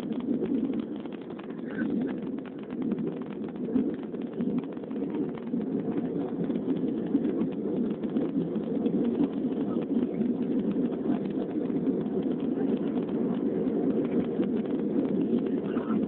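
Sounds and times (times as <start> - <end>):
airliner engine rumble: 0.0 - 16.0.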